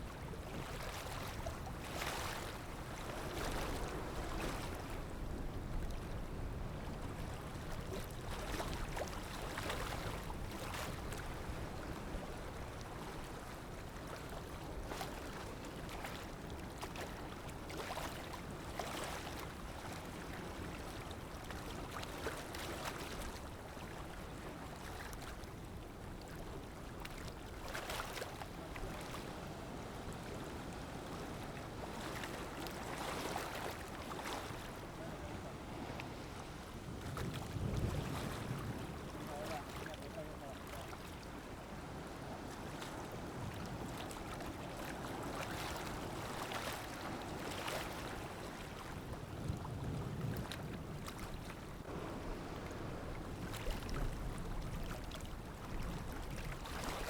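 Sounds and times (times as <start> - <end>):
sea waves splashing: 27.6 - 49.0, 51.1 - 55.3.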